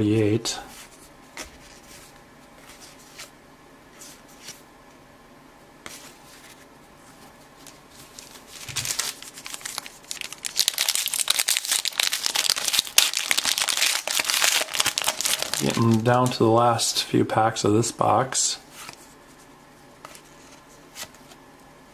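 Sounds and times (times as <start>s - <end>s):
plastic wrapper tearing and crinkling: 8.1s - 16.4s.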